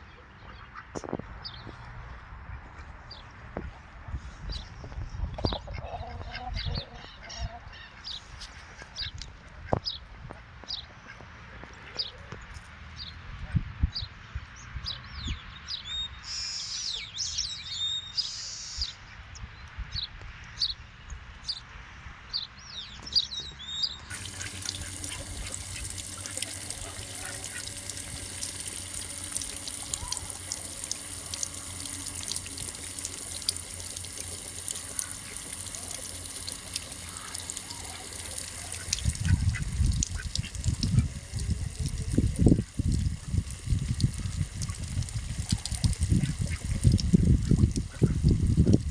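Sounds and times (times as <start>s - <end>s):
birds chirping: 22.3s - 42.7s
running water rushing: 24.0s - 48.9s.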